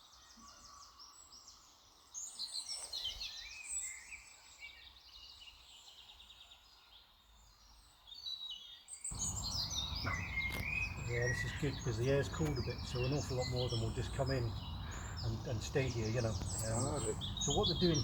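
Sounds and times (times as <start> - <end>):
small birds chirping: 9.0 - 18.0.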